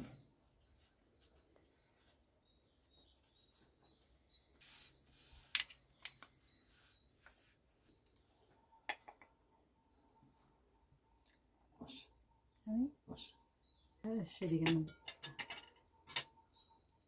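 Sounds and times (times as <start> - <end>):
faint birdsong: 0.0 - 17.0
serving spoon clinking on dishes: 14.4 - 16.4.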